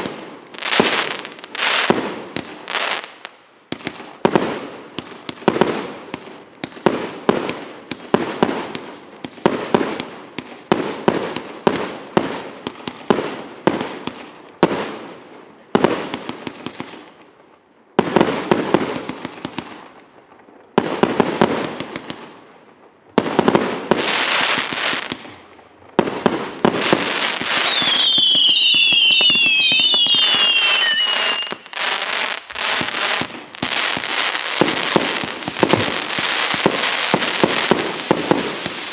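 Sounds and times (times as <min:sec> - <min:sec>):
firework launches and bursts: 0:26.8 - 0:38.9
falling firework whistles: 0:27.0 - 0:38.9.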